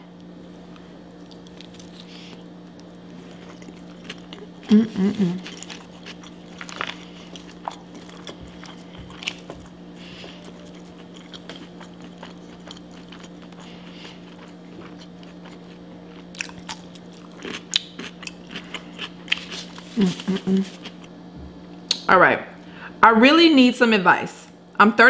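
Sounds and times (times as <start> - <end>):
steady low hum: 0.0 - 25.0
person chewing crunchy food: 0.2 - 21.2.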